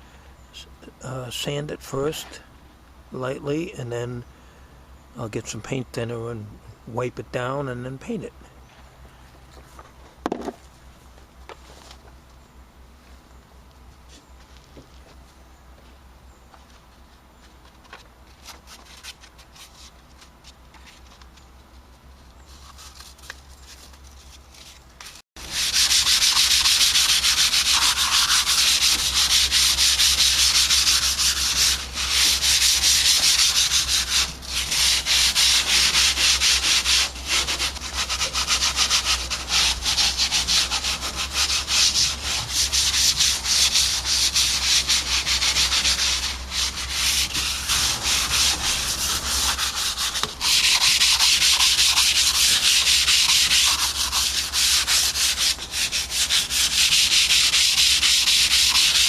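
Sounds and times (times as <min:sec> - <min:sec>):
hand sanding with sandpaper: 0:22.4 - 0:59.0.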